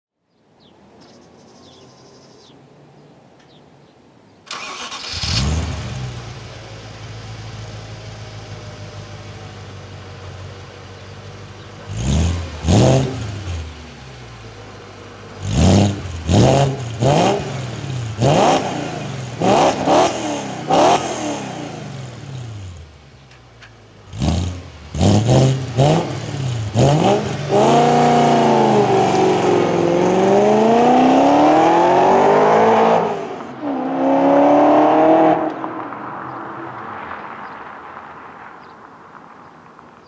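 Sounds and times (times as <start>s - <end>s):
car engine revving and accelerating: 4.6s - 10.0s, 11.0s - 22.9s, 24.0s - 37.7s.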